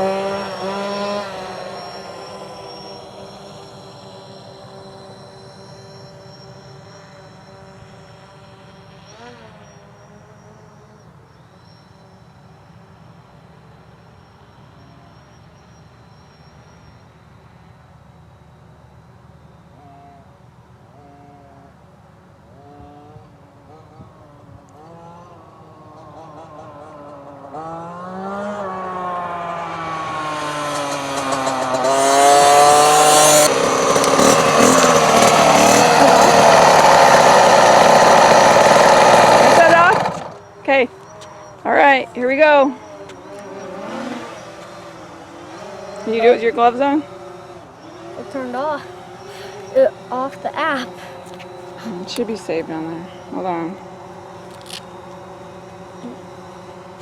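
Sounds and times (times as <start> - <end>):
dirt bike engine running: 0.0 - 10.5, 28.2 - 57.0.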